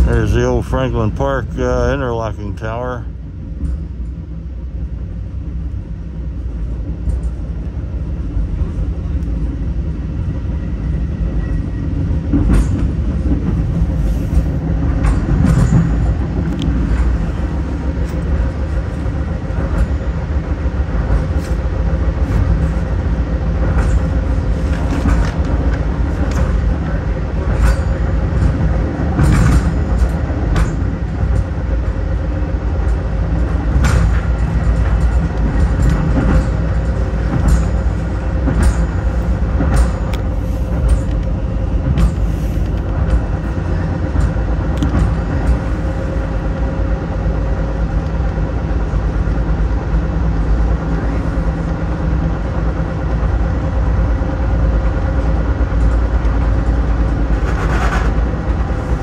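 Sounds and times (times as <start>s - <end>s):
train wheels rumbling on rails: 0.0s - 59.0s
wheels clicking over rail joints: 12.3s - 46.4s.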